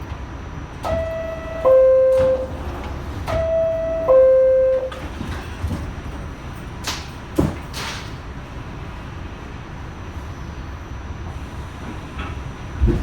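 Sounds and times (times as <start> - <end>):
train noise: 0.0 - 13.0
two-note door chime: 0.9 - 2.5, 3.4 - 5.0.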